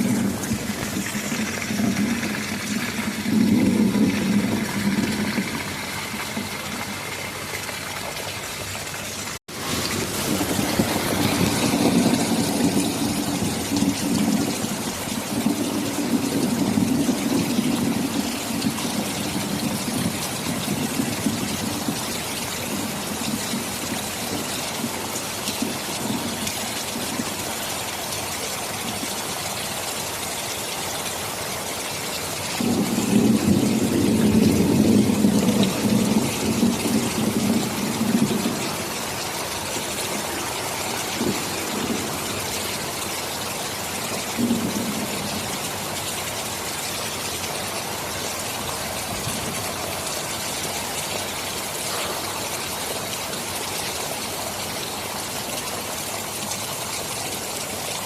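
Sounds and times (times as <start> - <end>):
low rolling thunder: 0.0 - 7.3, 9.5 - 27.6, 32.6 - 47.2, 48.1 - 50.2
heavy rain: 0.0 - 58.0.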